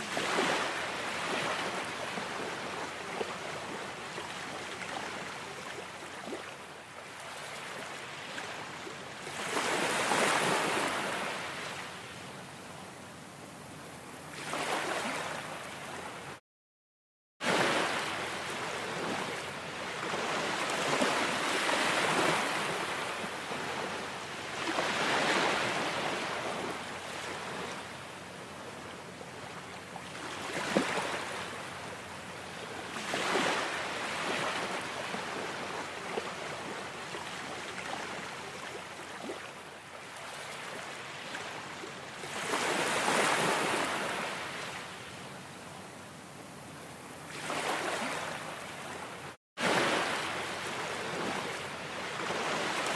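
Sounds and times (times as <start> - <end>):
ocean waves washing in: 17.4 - 28.8, 47.3 - 52.9.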